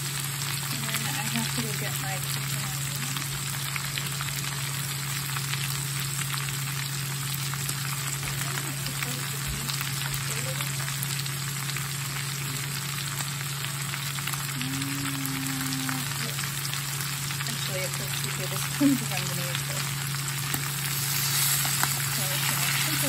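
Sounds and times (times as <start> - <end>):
cabbage sizzling in a skillet: 0.0 - 23.0
low hum: 0.0 - 23.0.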